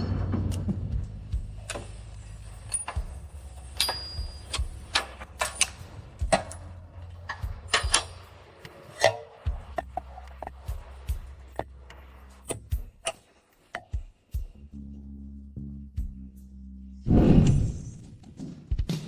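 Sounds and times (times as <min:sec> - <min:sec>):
sharp clicks and knocks: 0:09.8 - 0:10.6.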